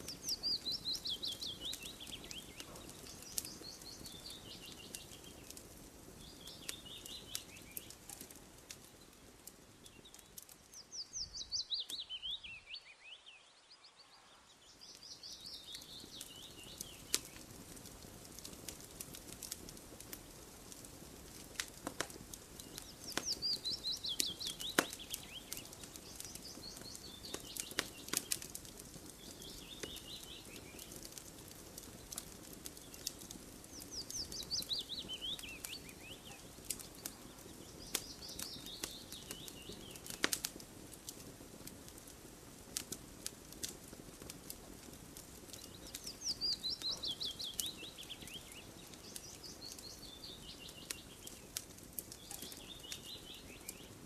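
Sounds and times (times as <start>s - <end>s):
bird singing: 0.0s - 5.6s, 6.2s - 8.3s, 9.8s - 17.5s, 22.6s - 31.2s, 32.0s - 40.2s, 45.5s - 51.5s, 52.1s - 54.0s
campfire crackling and popping: 0.0s - 13.2s, 13.8s - 54.0s.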